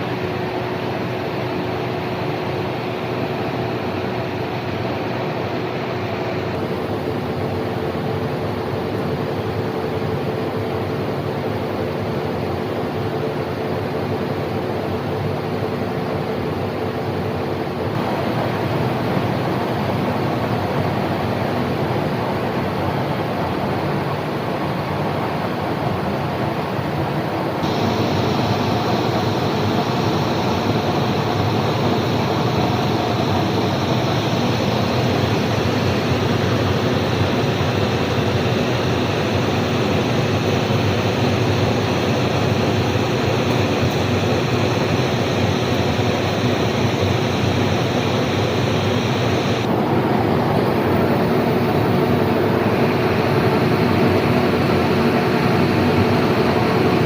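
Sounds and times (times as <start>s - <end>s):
lathe mechanical hum: 0.0s - 57.0s
lathe hiss: 27.6s - 57.0s.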